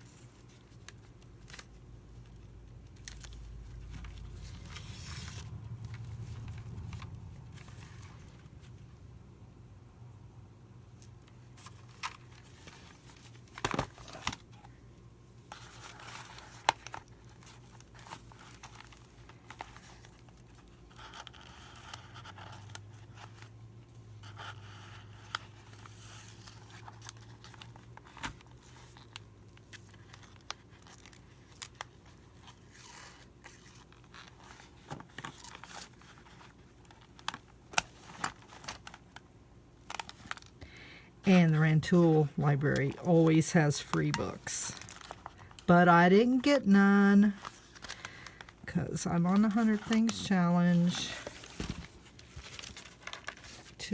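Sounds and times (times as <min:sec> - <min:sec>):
paper rustling and scraping: 0:03.0 - 0:08.8, 0:15.5 - 0:23.5, 0:24.2 - 0:39.0, 0:49.2 - 0:53.9.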